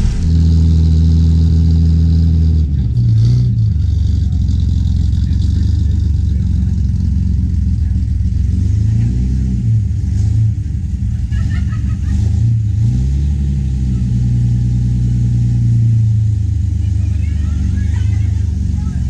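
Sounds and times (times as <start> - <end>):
sports car engine revving: 0.0 - 16.8.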